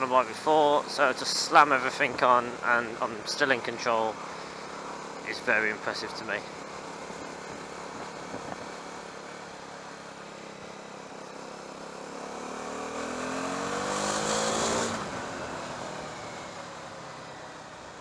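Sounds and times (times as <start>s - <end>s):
motorcycle engine accelerating: 6.4s - 17.9s.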